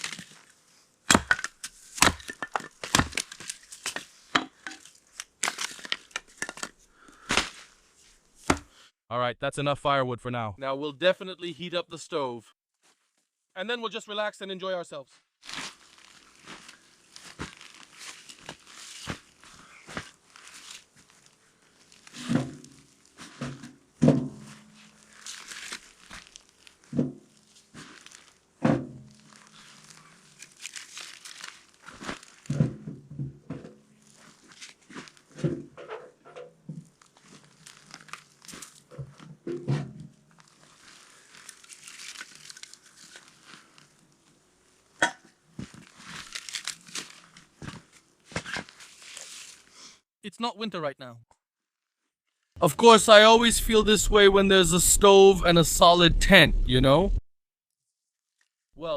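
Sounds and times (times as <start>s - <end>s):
crinkling and rustling: 0.0s - 0.8s, 1.5s - 8.5s, 15.4s - 49.7s.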